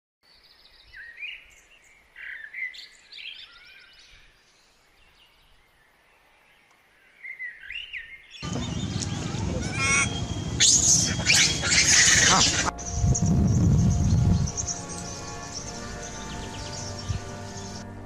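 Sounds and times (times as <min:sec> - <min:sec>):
faint outdoor hiss: 0:00.2 - 0:18.0
birds chirping and whistling: 0:07.2 - 0:17.9.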